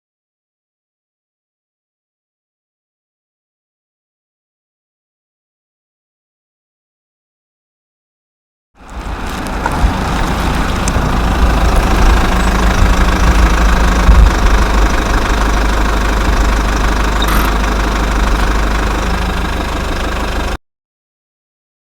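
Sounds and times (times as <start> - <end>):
diesel engine idling: 8.8 - 20.6.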